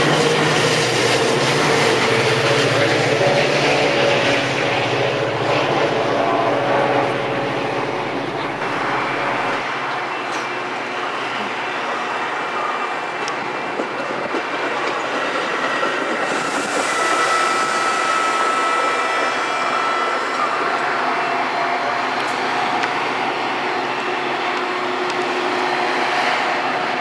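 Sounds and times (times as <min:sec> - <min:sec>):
train wheels on rail: 0:00.0 - 0:27.0
high metallic squeal: 0:15.6 - 0:22.8.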